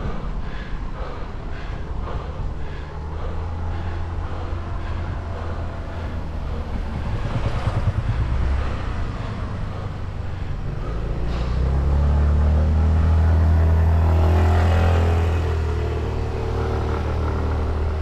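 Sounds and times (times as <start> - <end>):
wind rumble on microphone: 0.0 - 10.9
vehicle engine rumble: 0.0 - 18.0.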